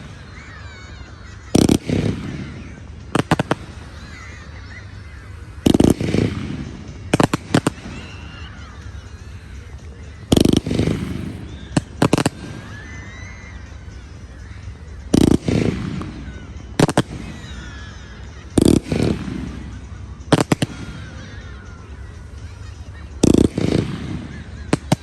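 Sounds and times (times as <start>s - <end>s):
firework sharp cracks: 10.3s - 12.7s, 18.6s - 20.9s.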